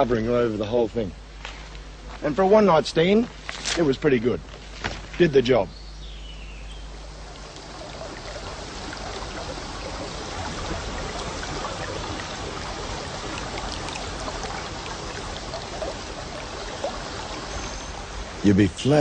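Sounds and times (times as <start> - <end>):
stream flowing over rocks: 6.9 - 18.4.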